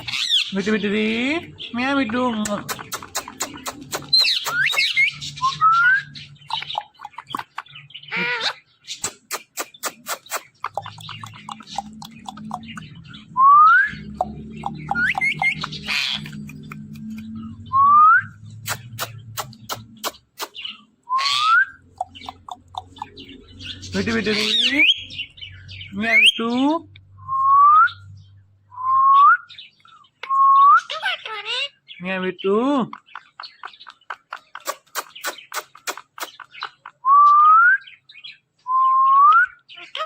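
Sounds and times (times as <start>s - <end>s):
parrot clicking chirps: 2.4s - 5.1s, 6.4s - 7.8s, 9.0s - 13.0s, 14.0s - 17.4s, 18.6s - 23.5s, 32.9s - 37.0s
parrot sharp clicks: 2.5s - 4.9s, 18.7s - 20.6s.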